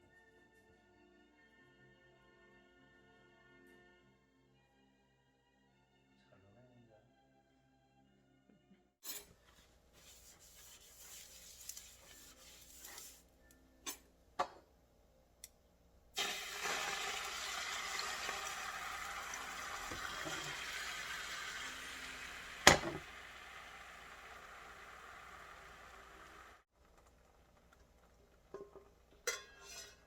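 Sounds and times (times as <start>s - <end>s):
water running from a tap: 16.2s - 26.6s.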